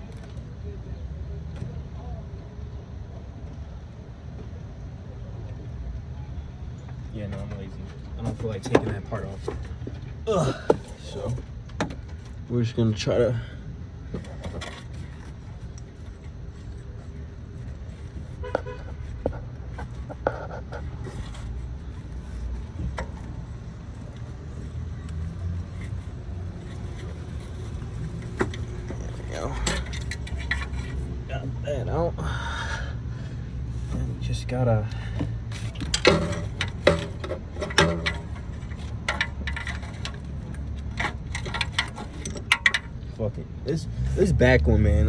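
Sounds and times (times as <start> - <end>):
metallic rattle: 20.8 - 31.4, 35.5 - 43.2
metal tools clinking: 21.0 - 31.2, 35.5 - 43.2.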